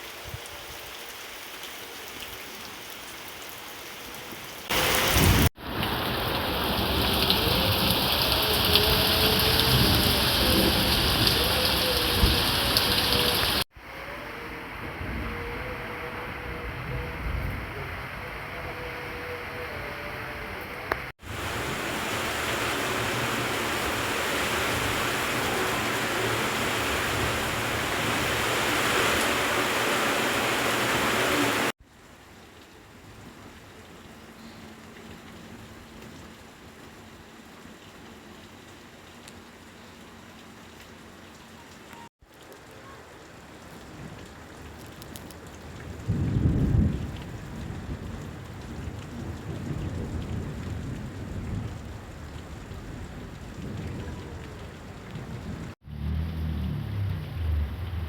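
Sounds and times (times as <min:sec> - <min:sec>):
heavy rain: 0:00.0 - 0:58.0
loud low rumble: 0:55.8 - 0:58.0.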